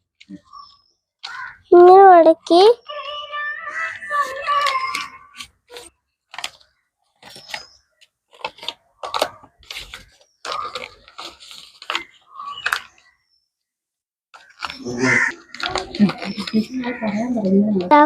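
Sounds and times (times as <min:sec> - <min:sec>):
paper crinkling: 0:04.2 - 0:13.0, 0:14.4 - 0:18.0.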